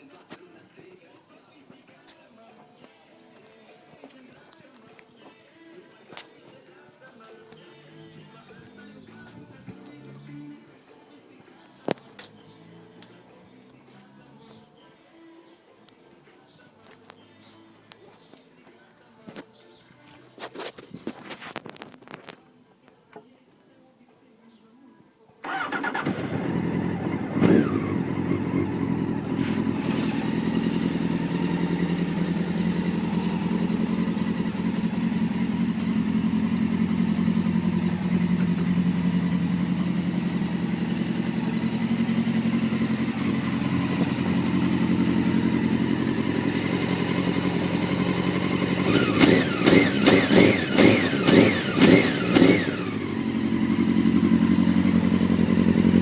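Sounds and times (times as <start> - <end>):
engine throttle blips: 25.4 - 56.0
motorcycle engine idling: 25.4 - 56.0.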